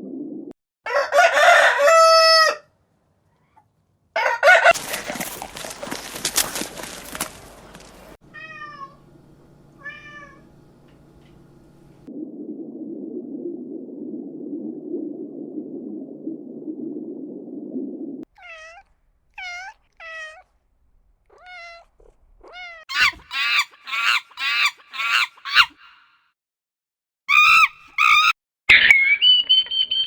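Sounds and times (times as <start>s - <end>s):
animal squawking calls: 22.6s - 26.0s, 27.3s - 28.3s.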